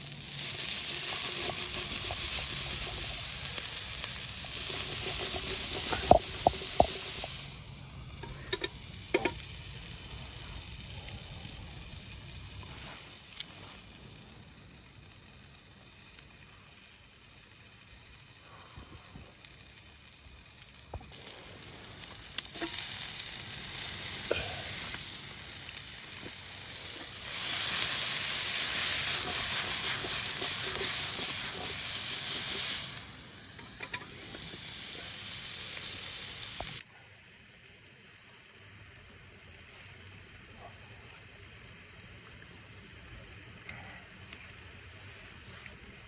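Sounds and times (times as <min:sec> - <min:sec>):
peppers sizzling over fire: 0:00.0 - 0:36.8
sharp pops: 0:01.4 - 0:07.5.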